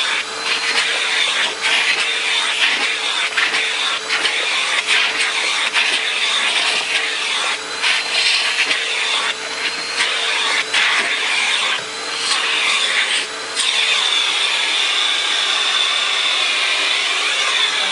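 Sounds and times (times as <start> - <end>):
vacuum cleaner running: 0.0 - 17.9.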